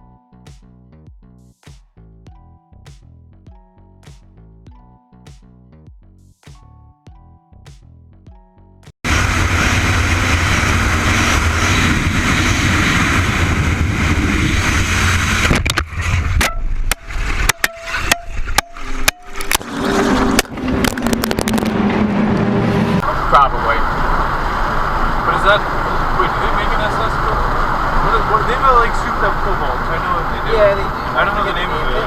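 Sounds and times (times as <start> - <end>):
car road and engine noise: 9.0 - 32.0.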